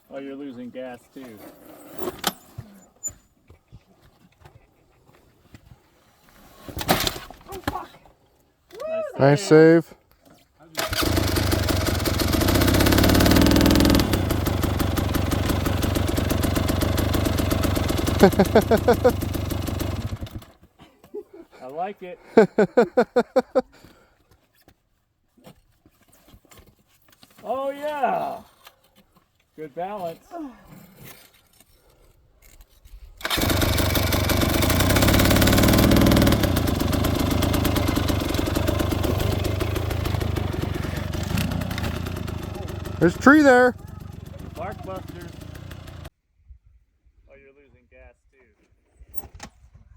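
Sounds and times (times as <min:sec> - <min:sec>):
dirt bike engine revving and idling: 0:10.8 - 0:20.5, 0:33.2 - 0:46.1.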